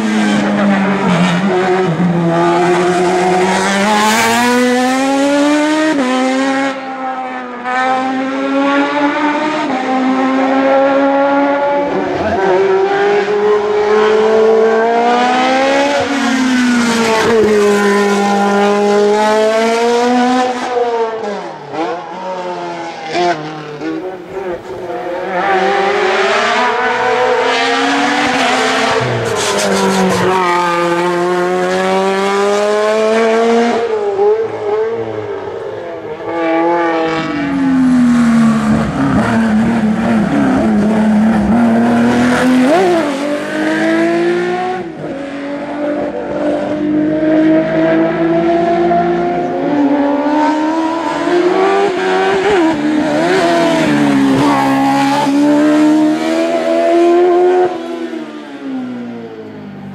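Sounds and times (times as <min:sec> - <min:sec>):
racing car engine at high revs: 0:00.0 - 0:59.9.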